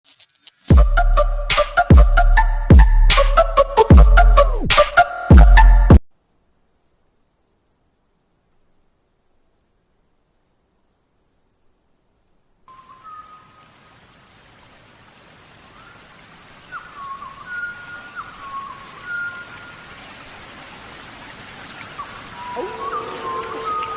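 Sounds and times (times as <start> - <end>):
faint insect chirping: 6.1 - 23.9
whistled bird notes: 12.7 - 13.6, 16.6 - 19.9, 21.8 - 23.9
rain-like hiss: 12.7 - 23.9
thin steady high tone: 22.4 - 23.9.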